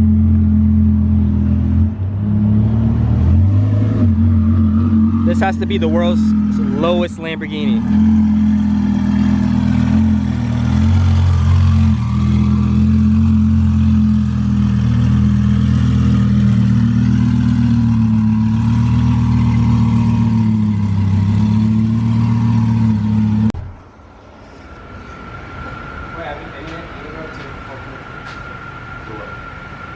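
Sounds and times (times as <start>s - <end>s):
sports car engine running: 0.0s - 23.7s.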